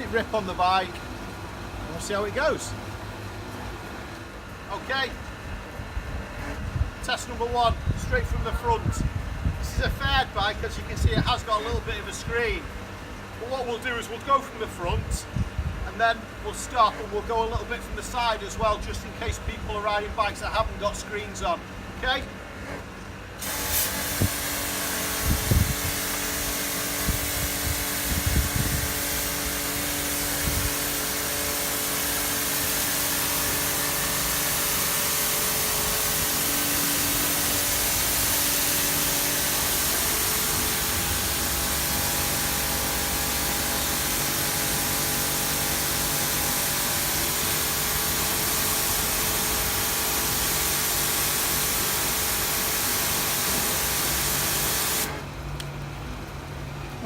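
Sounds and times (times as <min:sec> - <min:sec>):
pump motor hum: 0:21.5 - 0:57.0
pressure washer water jet hissing: 0:23.4 - 0:55.4.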